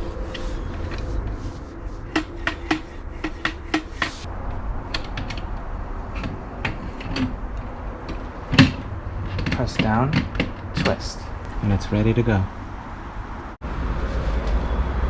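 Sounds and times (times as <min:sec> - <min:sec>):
plastic parts clicking and knocking: 0:06.2 - 0:11.1.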